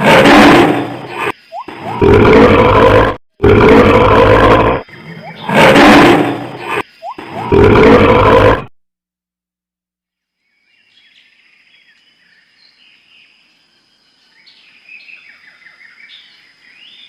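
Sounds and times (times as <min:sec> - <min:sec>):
large animal roaring: 0:00.0 - 0:08.7.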